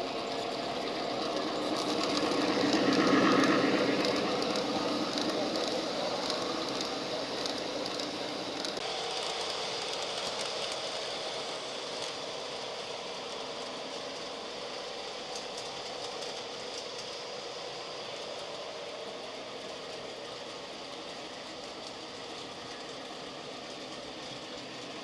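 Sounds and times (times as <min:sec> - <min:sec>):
model train whirring: 0:00.0 - 0:25.0
faint clicks of track: 0:01.2 - 0:08.8, 0:15.3 - 0:17.2.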